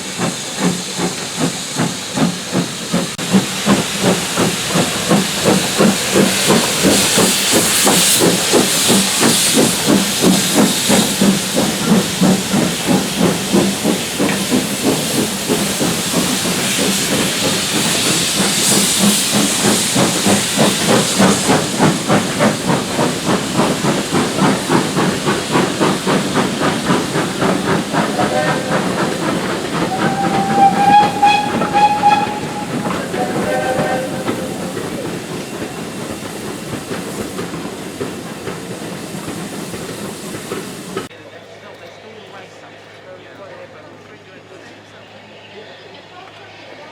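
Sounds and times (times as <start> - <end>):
steam hissing: 0.0 - 41.1
steam locomotive exhaust beats: 0.0 - 41.1
steam whistle: 27.4 - 35.2.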